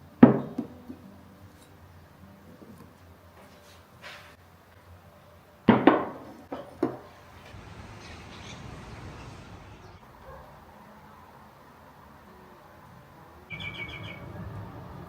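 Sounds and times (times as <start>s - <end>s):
household knocks: 5.7s - 7.1s.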